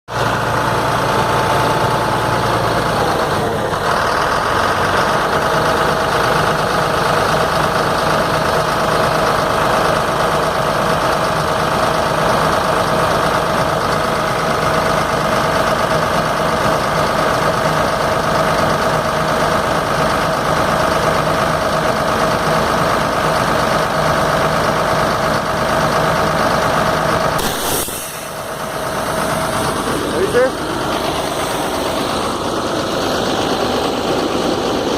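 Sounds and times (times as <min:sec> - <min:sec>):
truck engine idling: 0:00.1 - 0:34.9
short sharp air burst: 0:27.4 - 0:29.8.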